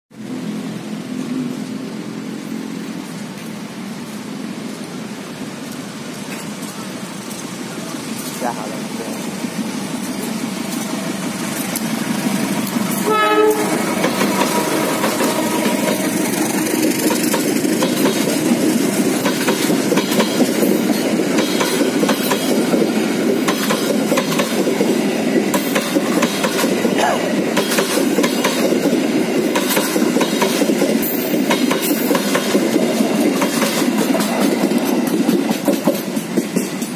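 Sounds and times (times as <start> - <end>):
wheels clattering over rail joints: 2.3 - 36.9
train horn blast: 13.0 - 16.3.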